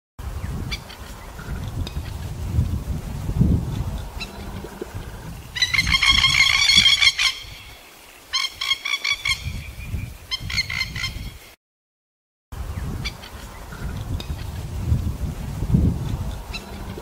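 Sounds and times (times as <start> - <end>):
low rumble: 1.4 - 5.7, 13.8 - 17.0
bird chattering calls: 4.0 - 7.6.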